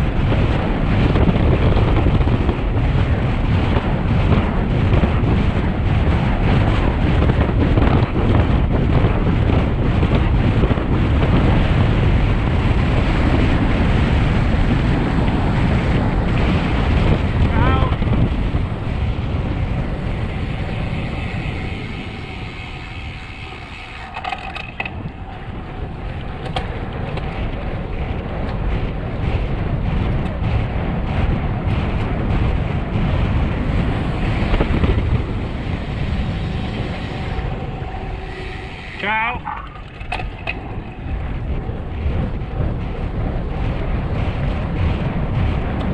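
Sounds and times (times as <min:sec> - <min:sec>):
wind buffeting microphone: 0:00.0 - 0:45.9
faint steady tones: 0:33.3 - 0:43.3.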